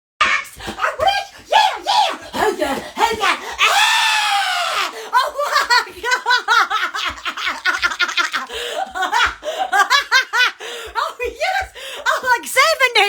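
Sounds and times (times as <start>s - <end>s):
high-pitched human laughter: 4.6s - 10.6s
short breath: 8.5s - 9.7s, 10.6s - 11.0s.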